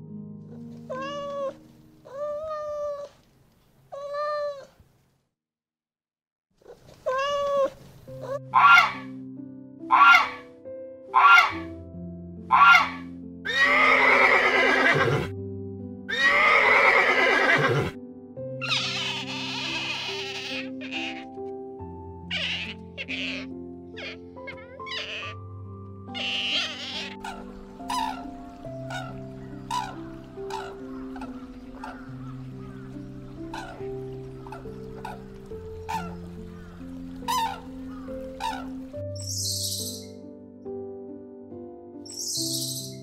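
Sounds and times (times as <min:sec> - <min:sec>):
background music: 0:00.0 - 0:03.1, 0:07.2 - 0:43.0
high animal call: 0:07.1 - 0:09.1, 0:09.9 - 0:10.5, 0:11.1 - 0:11.7, 0:12.5 - 0:15.3, 0:16.1 - 0:17.9, 0:18.6 - 0:21.3, 0:22.2 - 0:25.5, 0:26.1 - 0:40.1
horse whinnying: 0:12.6 - 0:15.3, 0:16.1 - 0:17.9, 0:18.6 - 0:21.3, 0:22.3 - 0:25.4, 0:26.2 - 0:28.2.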